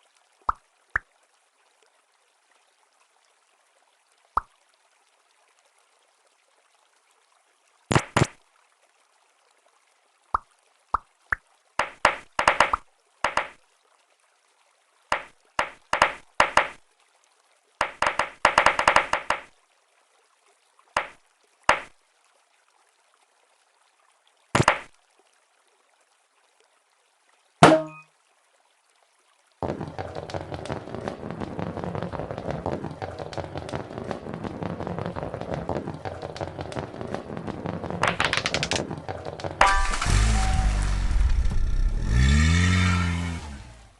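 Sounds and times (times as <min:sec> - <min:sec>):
sharp clicks and clattering knocks: 0:11.8 - 0:13.6, 0:15.1 - 0:16.8, 0:17.8 - 0:19.5, 0:32.1 - 0:40.8.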